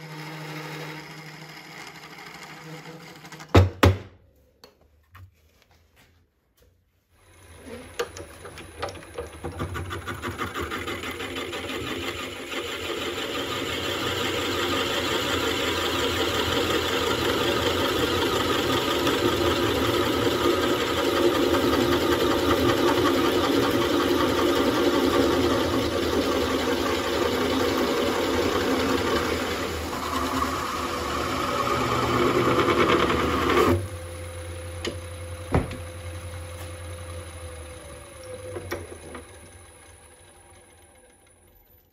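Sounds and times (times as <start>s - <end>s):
lathe humming: 0.0s - 3.4s, 7.2s - 41.3s
wood lathe cutting: 0.0s - 3.6s, 7.2s - 35.4s.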